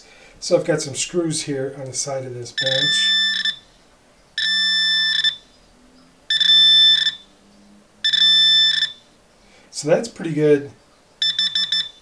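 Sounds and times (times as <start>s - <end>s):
metal detector high beeps: 2.6s - 3.7s, 4.4s - 5.5s, 6.3s - 7.3s, 8.0s - 9.1s, 11.2s - 12.0s.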